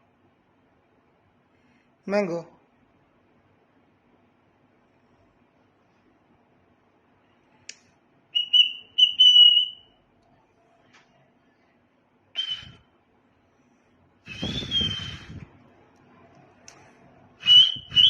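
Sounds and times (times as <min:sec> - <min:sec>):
cockatiel whistling: 0:08.4 - 0:09.9, 0:12.4 - 0:12.8, 0:14.3 - 0:15.4, 0:17.4 - 0:18.0.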